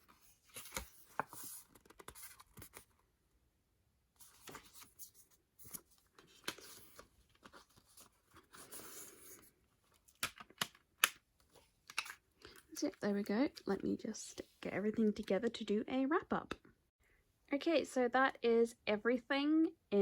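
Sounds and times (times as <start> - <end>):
small clicks of packaging: 9.9 - 12.9.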